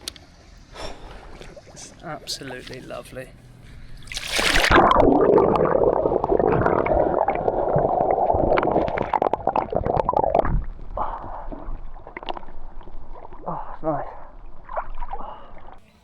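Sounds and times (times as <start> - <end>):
splash into swimming pool: 4.0 - 5.1
water gurgling and bubbling: 4.0 - 15.8.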